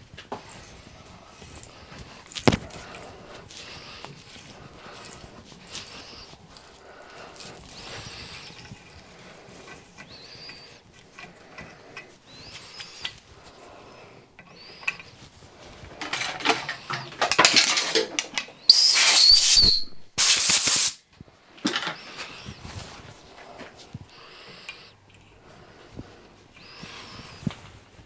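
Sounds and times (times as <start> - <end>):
hand tap squeaking: 18.6 - 20.6
loud hissing bursts: 18.7 - 21.0.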